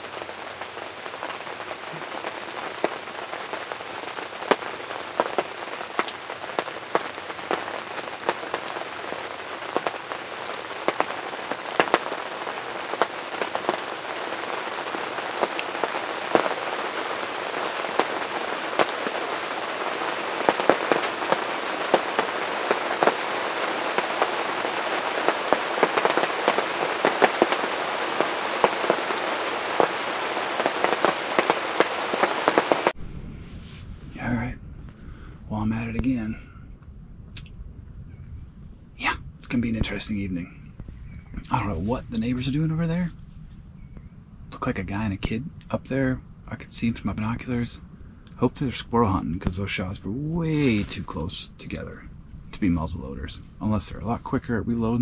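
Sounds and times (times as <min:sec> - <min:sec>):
raindrops ticking on a blind: 0:00.0 - 0:33.0, 0:44.6 - 0:55.0.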